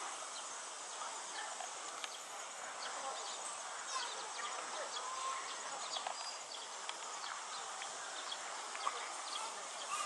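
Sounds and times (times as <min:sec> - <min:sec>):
steady high hiss: 0:00.0 - 0:10.0
bird chirps and clicks: 0:01.6 - 0:02.3, 0:05.8 - 0:10.0.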